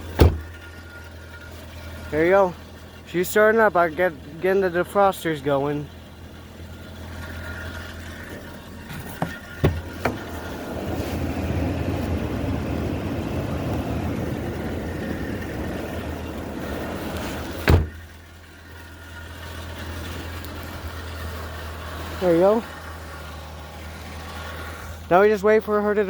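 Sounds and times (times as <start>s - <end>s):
car engine idling: 0.0s - 26.0s
loud thump: 0.1s - 0.6s, 9.0s - 10.3s, 17.6s - 18.0s.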